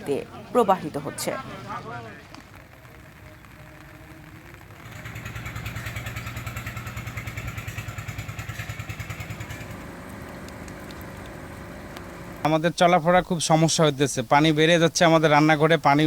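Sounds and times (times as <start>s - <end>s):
engine running with rapid pulsing: 4.4s - 12.5s.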